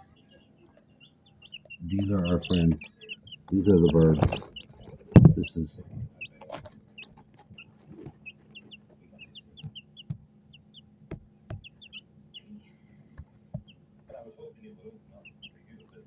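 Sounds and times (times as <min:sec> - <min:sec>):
small birds chirping: 0:00.0 - 0:16.0
sharp knocks: 0:11.1 - 0:11.8.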